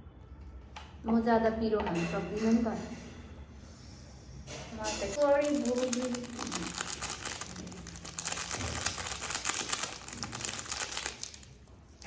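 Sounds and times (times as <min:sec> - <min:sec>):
plastic packaging crinkling: 0:05.2 - 0:12.0.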